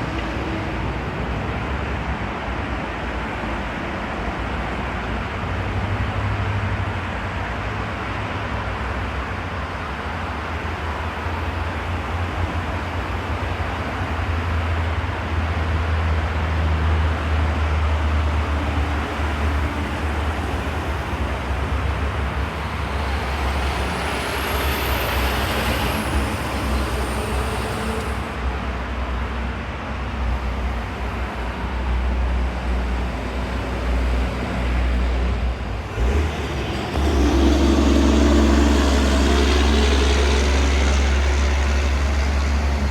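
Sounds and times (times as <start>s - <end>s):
traffic rumble: 0.0s - 42.9s
high-pitched whine: 18.5s - 29.2s, 35.7s - 42.9s.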